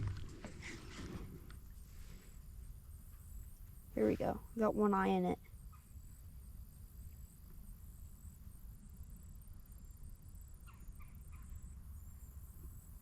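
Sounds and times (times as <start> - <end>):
low rumble: 0.0 - 1.5.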